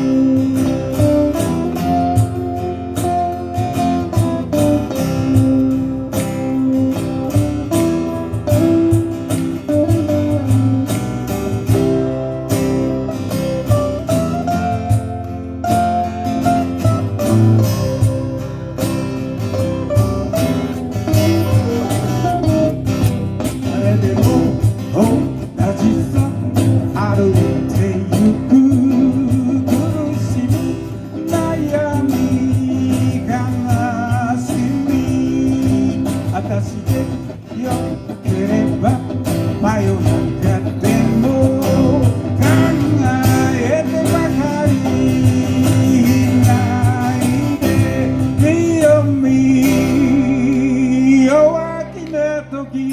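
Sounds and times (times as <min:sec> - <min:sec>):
live guitar music: 0:00.0 - 0:52.9
person singing: 0:23.6 - 0:52.9.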